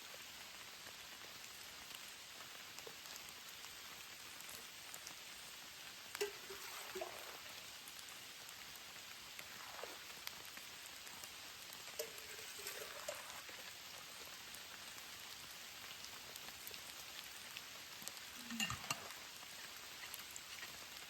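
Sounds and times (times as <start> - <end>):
steady rain falling: 0.0 - 21.0
cluster of clicks: 16.3 - 21.0.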